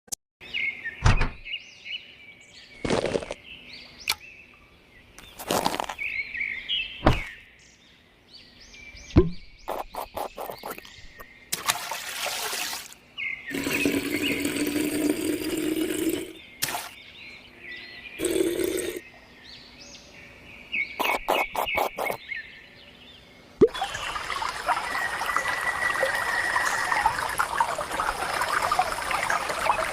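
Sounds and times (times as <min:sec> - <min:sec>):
birds chirping: 0:00.4 - 0:11.6, 0:13.0 - 0:29.9
water pouring and splashing: 0:11.5 - 0:17.0, 0:23.6 - 0:29.9.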